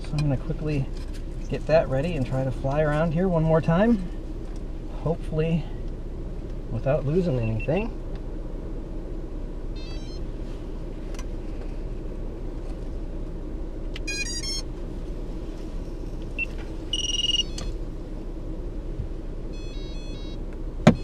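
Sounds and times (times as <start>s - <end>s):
steady low rumble: 0.0s - 21.0s
short electronic beeps: 9.8s - 10.2s, 14.1s - 14.6s, 16.4s - 17.7s, 19.5s - 20.4s.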